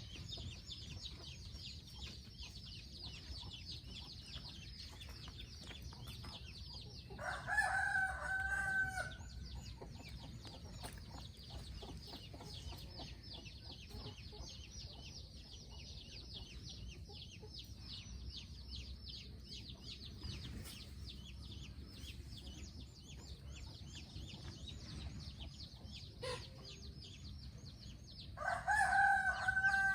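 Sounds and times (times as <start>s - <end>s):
rooster crowing: 7.2s - 9.2s, 28.4s - 29.9s.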